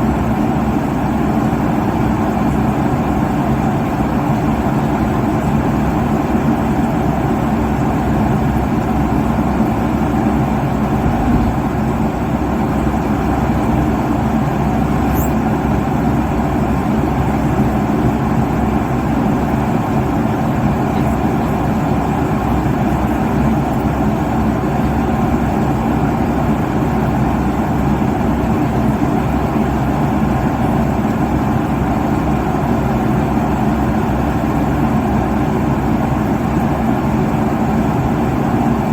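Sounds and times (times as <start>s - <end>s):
airliner engine and airflow rush: 0.0s - 38.9s.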